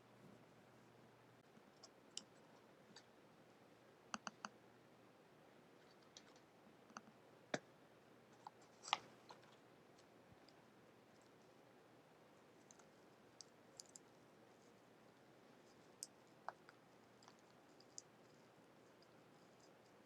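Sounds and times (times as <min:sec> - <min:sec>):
computer mouse clicks: 0:01.6 - 0:03.1, 0:04.1 - 0:04.6, 0:12.6 - 0:14.1.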